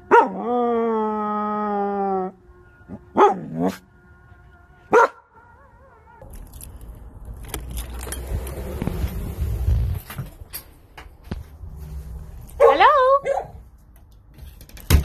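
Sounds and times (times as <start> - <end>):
dog barking: 0.1 - 0.4, 3.2 - 3.8, 4.9 - 6.2, 12.6 - 13.6
dog howling: 4.9 - 6.4
clicking and rustling: 6.2 - 9.2.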